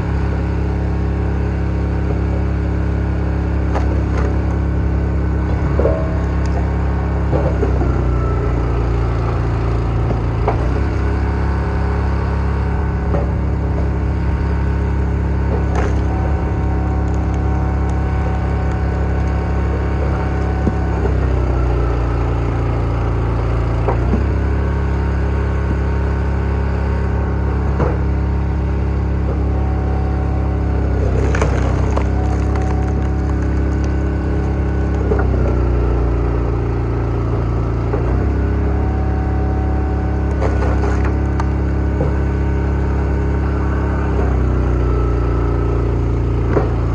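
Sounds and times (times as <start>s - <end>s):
log splitter engine running: 0.0s - 46.9s
wood cracking apart: 15.2s - 21.2s, 30.6s - 35.9s
wood splitting cracks: 15.5s - 16.2s, 30.9s - 35.8s, 40.3s - 42.2s.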